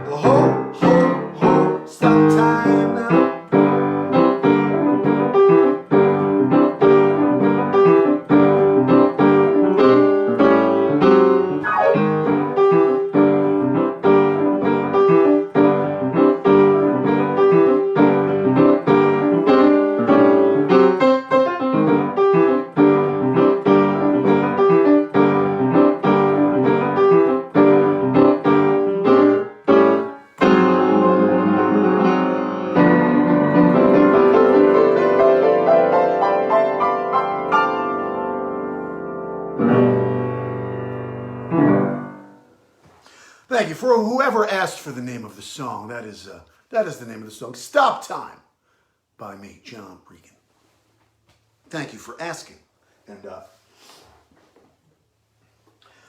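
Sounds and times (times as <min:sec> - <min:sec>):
piano playing repeated chords: 0:00.0 - 0:42.6.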